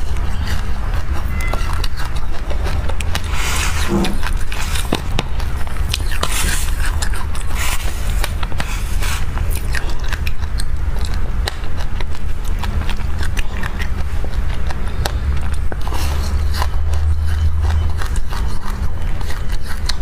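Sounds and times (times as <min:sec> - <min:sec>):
low hum: 0:00.0 - 0:11.5
crunchy chewing of seeds: 0:00.0 - 0:20.0
spoon scraping a bowl: 0:01.2 - 0:02.1, 0:03.0 - 0:05.0.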